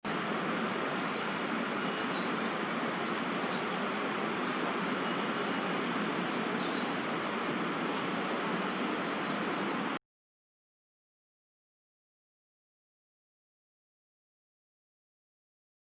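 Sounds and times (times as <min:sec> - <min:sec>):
distant city traffic: 0:00.0 - 0:10.0
small birds chirping: 0:00.1 - 0:10.0.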